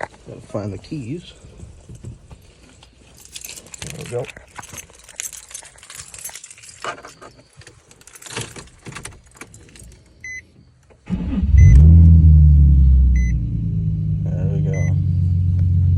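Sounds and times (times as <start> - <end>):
keys jangling: 2.4 - 10.2
car engine starting and idling: 10.9 - 15.9
short electronic beeps: 13.2 - 13.4, 14.7 - 15.0.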